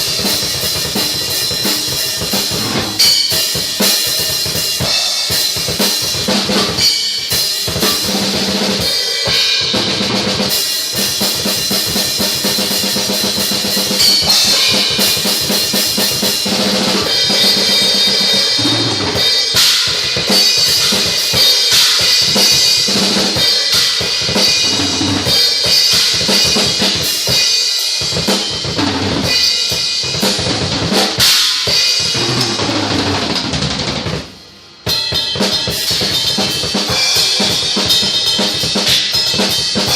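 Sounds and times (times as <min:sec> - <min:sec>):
cymbals crashing: 0:01.2 - 0:05.6, 0:14.0 - 0:28.0
bass drum and snare hits: 0:02.3 - 0:03.3, 0:32.1 - 0:34.3.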